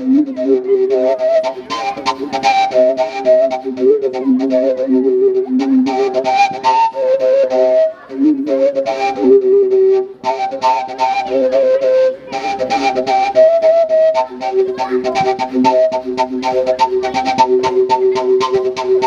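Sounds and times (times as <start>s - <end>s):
flute-like wind instrument melody: 0.0s - 19.0s
steady percussive beat: 0.0s - 19.0s.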